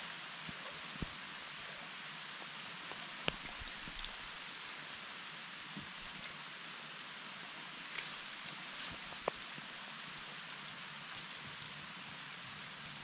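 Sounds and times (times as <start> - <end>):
steady rain hiss: 0.0 - 13.0
raindrop ticks: 2.8 - 4.3, 9.0 - 9.5.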